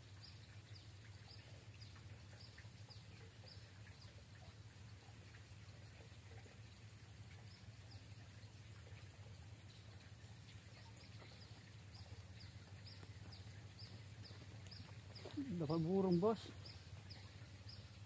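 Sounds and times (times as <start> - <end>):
bird chirping: 10.7 - 18.0.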